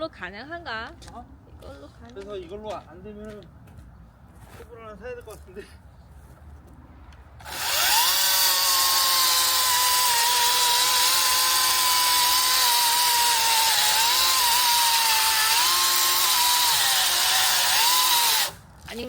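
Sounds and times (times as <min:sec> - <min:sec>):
electric saw motor whining: 0:07.4 - 0:18.6.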